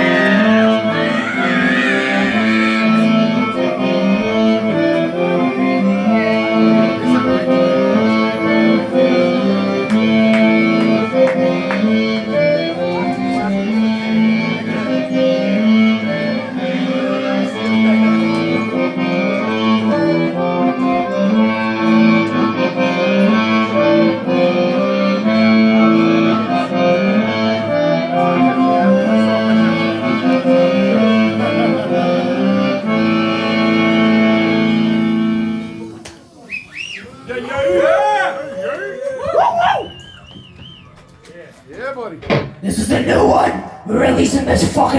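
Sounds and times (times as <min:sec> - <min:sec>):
live band playing sustained chords: 0:03.0 - 0:36.0.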